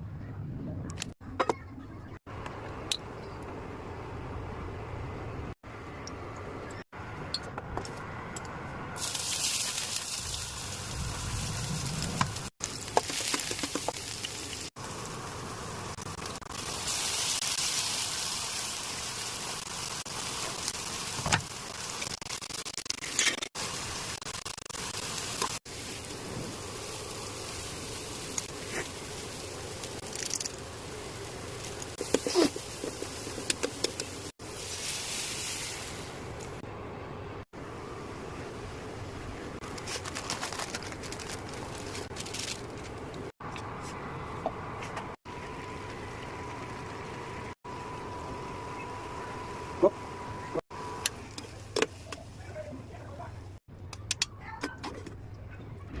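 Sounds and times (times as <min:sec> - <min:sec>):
food sizzling in hot oil: 0:09.0 - 0:36.6.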